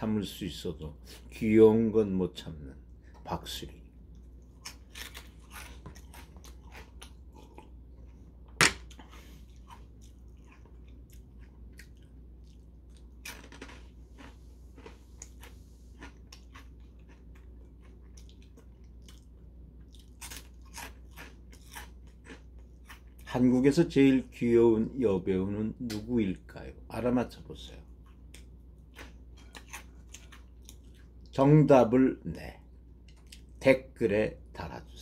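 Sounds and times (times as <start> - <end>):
crunching shrimp crackers: 4.2 - 23.4, 27.9 - 31.4.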